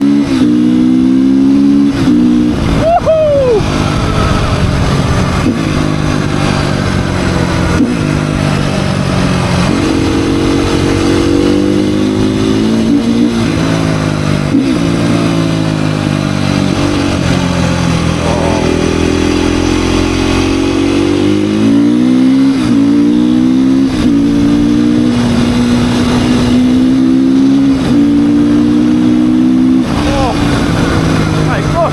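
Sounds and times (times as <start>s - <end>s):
dirt bike engine revving: 0.0s - 31.9s.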